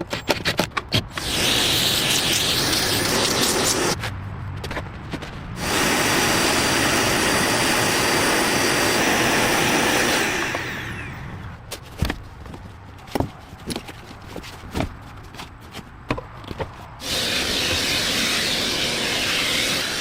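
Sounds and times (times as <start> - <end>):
power tool whining and hissing: 1.1 - 4.0, 5.6 - 11.6, 17.0 - 20.0.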